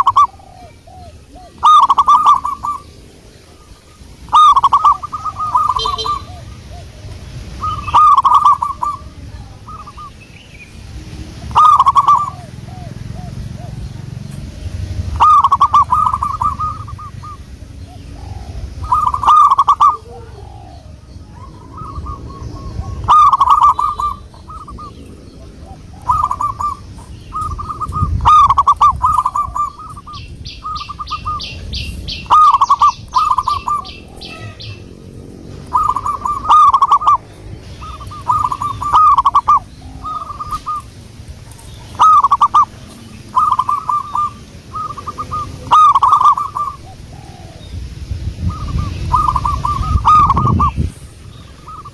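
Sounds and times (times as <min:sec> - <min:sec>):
dove cooing: 0:00.0 - 0:10.2, 0:10.8 - 0:47.8, 0:48.4 - 0:51.9
high rapid bird trill: 0:00.0 - 0:47.8, 0:48.4 - 0:51.9.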